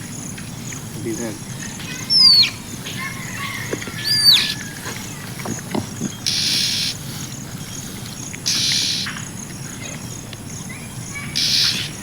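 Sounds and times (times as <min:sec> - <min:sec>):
outdoor background noise: 0:00.0 - 0:12.0
bird whistled call: 0:02.1 - 0:04.8, 0:11.4 - 0:12.0.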